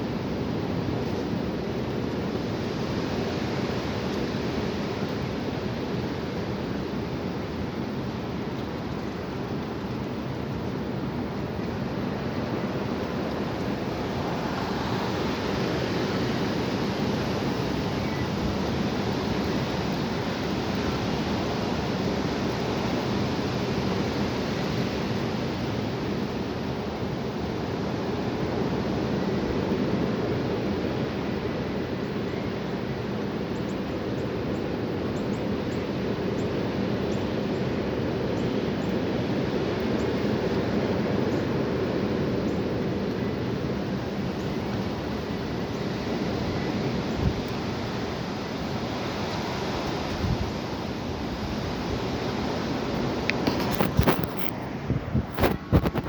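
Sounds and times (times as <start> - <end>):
high wind rushing: 50.2 - 56.0.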